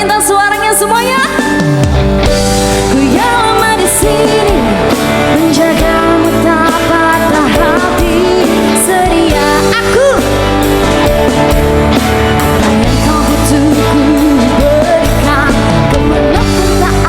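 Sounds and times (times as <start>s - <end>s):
live band playing pop song: 0.0s - 17.0s
person singing: 2.8s - 10.8s, 12.7s - 17.0s.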